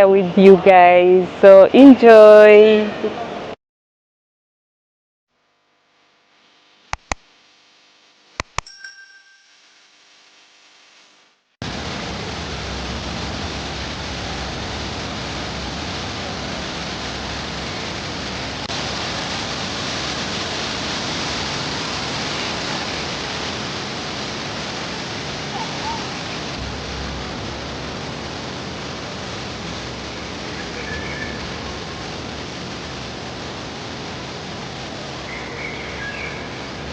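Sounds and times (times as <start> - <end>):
steady rushing noise: 11.6 - 36.9.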